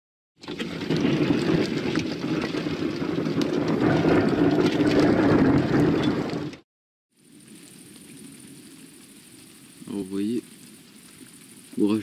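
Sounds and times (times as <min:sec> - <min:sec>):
rain falling: 0:00.4 - 0:12.0
low rumble: 0:00.7 - 0:06.6.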